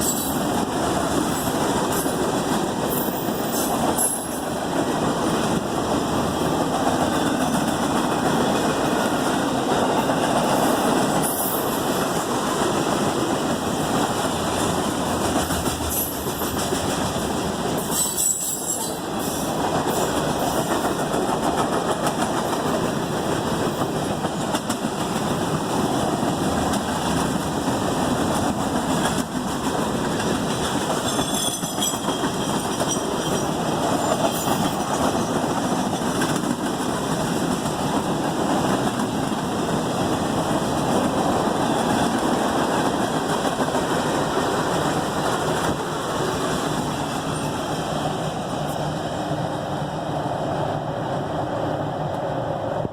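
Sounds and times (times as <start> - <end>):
freight train rumbling past: 0.0 - 52.9
high-pitched wheel squeals: 31.0 - 34.7.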